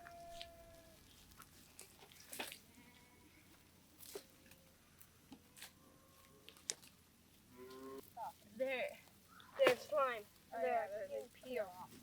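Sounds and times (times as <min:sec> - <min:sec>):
faint animal calls: 0:00.0 - 0:01.0.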